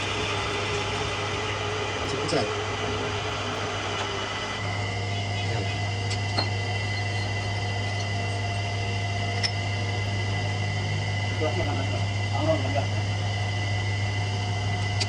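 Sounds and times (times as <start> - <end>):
electric motor humming and whining: 0.0 - 15.0.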